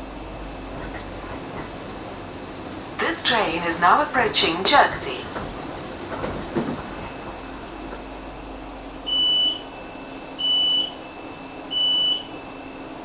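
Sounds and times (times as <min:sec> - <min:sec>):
train carriage hum: 0:00.0 - 0:13.0
train door warning beeps: 0:03.0 - 0:08.2, 0:09.0 - 0:13.0.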